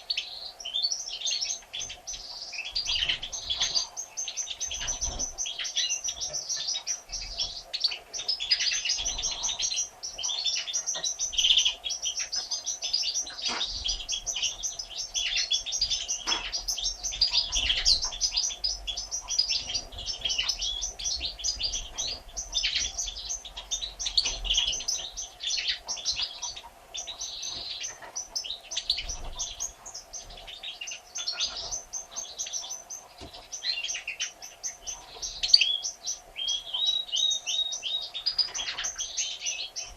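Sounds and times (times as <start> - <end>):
faint steady hum: 0.0 - 39.9
goldfinches twittering: 0.0 - 39.9.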